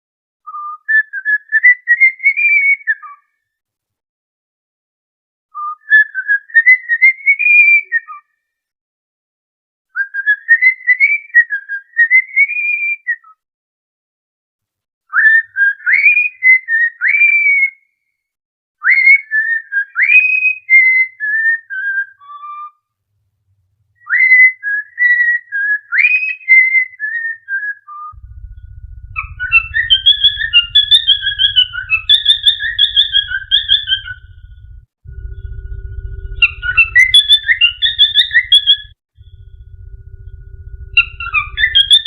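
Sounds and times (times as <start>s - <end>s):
whistled melody: 0.4s - 2.1s, 24.0s - 42.0s
chirpy whistling: 24.0s - 42.0s
low hum: 28.2s - 42.0s.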